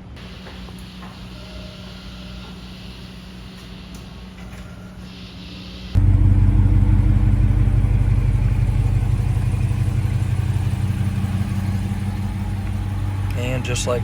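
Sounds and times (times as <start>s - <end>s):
car engine idling: 6.0s - 14.0s.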